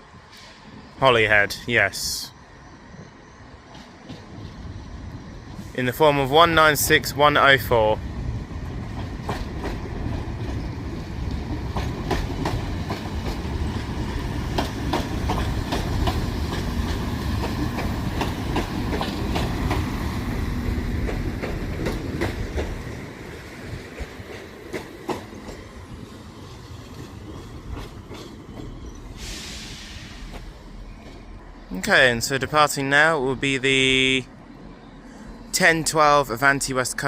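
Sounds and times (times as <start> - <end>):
train rumbling: 0.0 - 37.0
wheels clicking over rail joints: 8.6 - 29.2.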